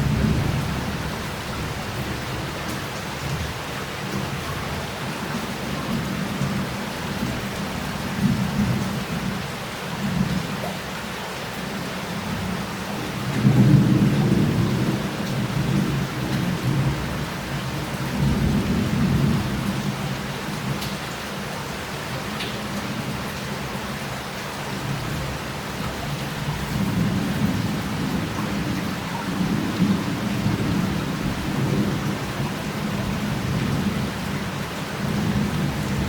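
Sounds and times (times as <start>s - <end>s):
heavy rain on street tiles: 0.0s - 36.0s.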